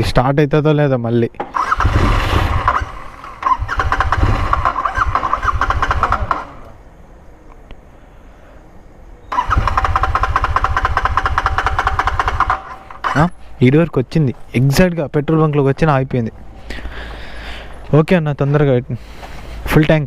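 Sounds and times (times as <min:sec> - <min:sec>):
motorcycle engine starting and faltering: 0:01.4 - 0:06.8, 0:09.3 - 0:13.4.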